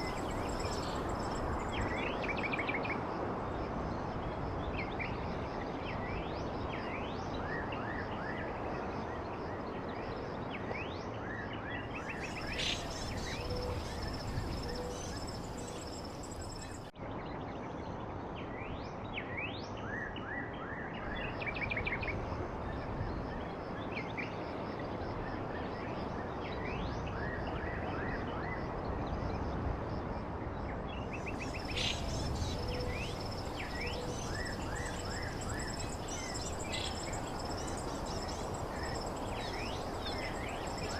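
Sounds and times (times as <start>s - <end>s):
small birds chirping: 0.0s - 2.4s, 12.0s - 16.9s, 31.1s - 40.9s
rushing background noise: 0.0s - 2.5s, 31.1s - 40.9s.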